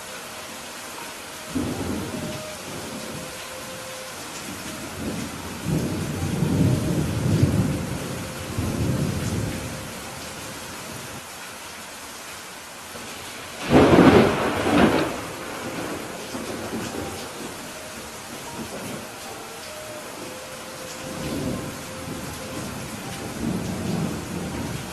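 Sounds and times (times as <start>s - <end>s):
steady rain: 0.0s - 24.9s
low rumbles of thunder: 4.4s - 10.2s, 13.6s - 19.2s, 21.0s - 24.9s
sharp thunderclap: 13.6s - 17.1s.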